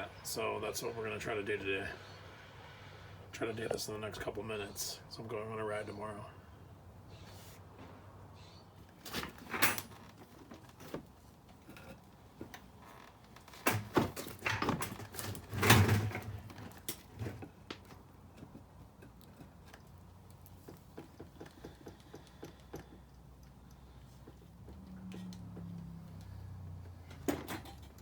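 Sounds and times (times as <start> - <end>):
tools and parts clattering: 13.3 - 19.9, 27.1 - 28.0
light regular ticks: 19.1 - 27.0.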